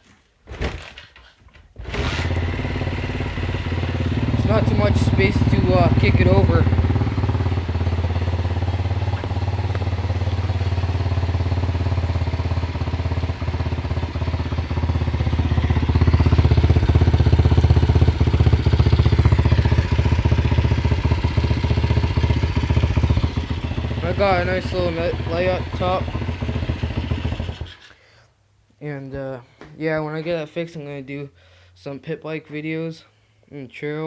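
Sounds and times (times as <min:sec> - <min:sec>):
motorbike engine idling: 0:01.9 - 0:27.9.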